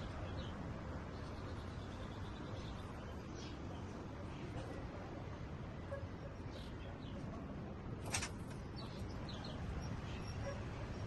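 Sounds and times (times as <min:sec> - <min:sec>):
sharp rustle: 0:08.0 - 0:08.5.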